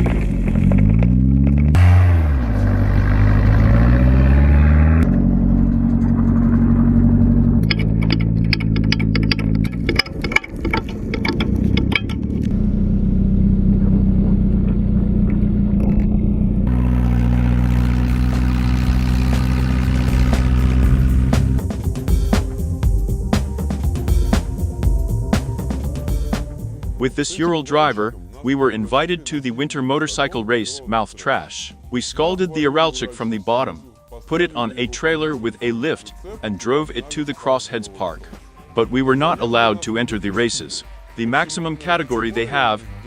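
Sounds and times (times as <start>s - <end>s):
engine revving: 0.0s - 27.0s
rapid clatter: 5.6s - 12.5s.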